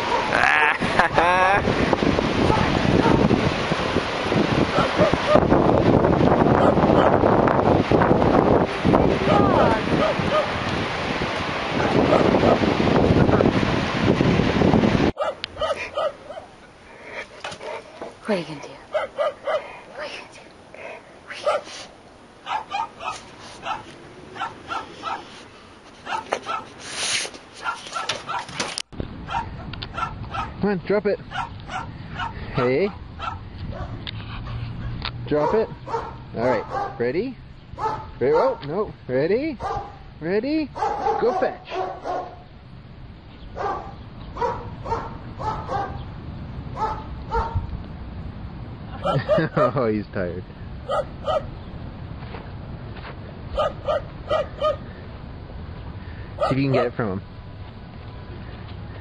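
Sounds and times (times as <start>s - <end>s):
dog barking: 0.0s - 0.3s, 2.5s - 3.2s, 4.7s - 5.5s, 6.6s - 7.2s, 9.3s - 10.6s, 11.8s - 12.6s, 15.2s - 16.6s, 18.9s - 20.2s, 21.4s - 21.8s, 22.4s - 25.4s, 26.0s - 26.8s, 27.6s - 28.6s, 29.3s - 30.6s, 31.3s - 34.6s, 35.3s - 37.0s, 37.8s - 38.6s, 39.6s - 40.0s, 40.8s - 42.4s, 43.6s - 46.0s, 46.8s - 47.7s, 49.0s - 49.7s, 50.8s - 51.5s, 53.6s - 54.8s, 56.4s - 57.0s.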